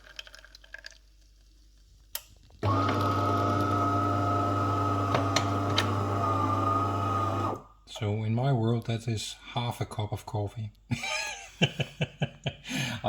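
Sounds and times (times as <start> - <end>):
espresso machine motor hum: 2.6 - 7.7
espresso machine click: 5.1 - 6.1.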